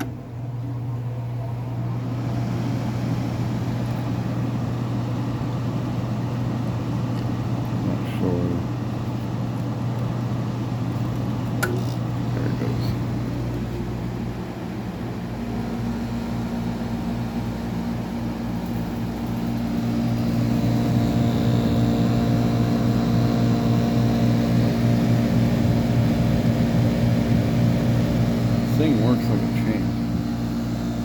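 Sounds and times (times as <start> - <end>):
air conditioner humming: 0.0 - 31.0.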